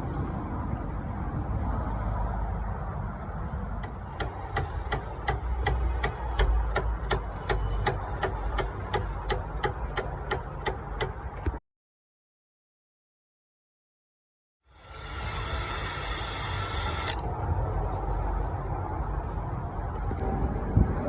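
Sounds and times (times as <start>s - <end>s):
hammer tapping car door panel: 3.8s - 11.2s.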